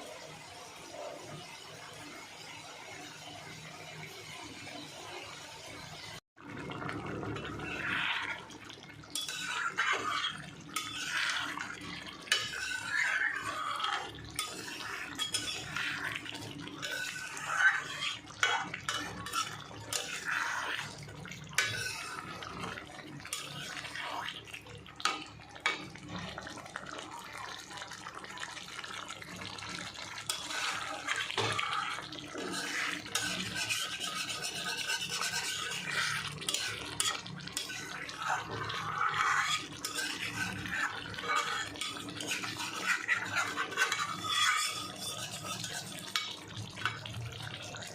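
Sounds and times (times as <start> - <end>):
running water: 6.4 - 47.9
dishes and utensils clinking: 9.0 - 24.0, 30.2 - 31.7, 32.4 - 47.1.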